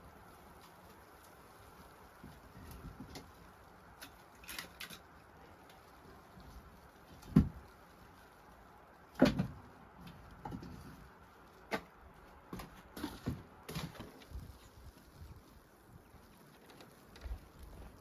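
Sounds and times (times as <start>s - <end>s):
faint steady hiss: 0.0s - 18.0s
knocks and thumps: 7.2s - 7.6s.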